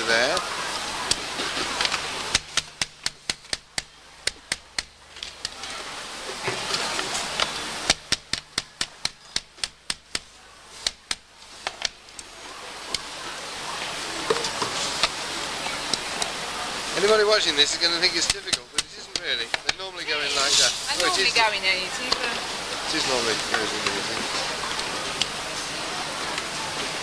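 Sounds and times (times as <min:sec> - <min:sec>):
sharp taps on small parts: 0:01.8 - 0:05.6, 0:07.9 - 0:12.0.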